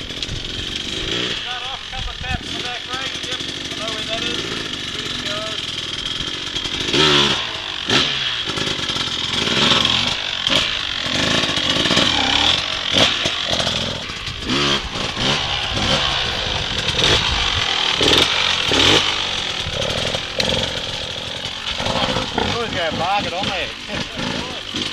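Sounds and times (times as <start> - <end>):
dirt bike engine revving: 0.0 - 24.9.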